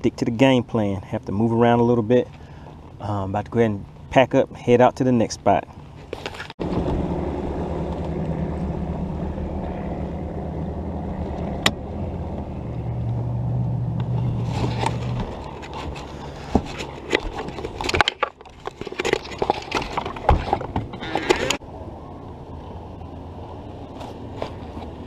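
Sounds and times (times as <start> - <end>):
rushing noise: 6.6 - 17.0
outboard motor running: 6.6 - 24.8.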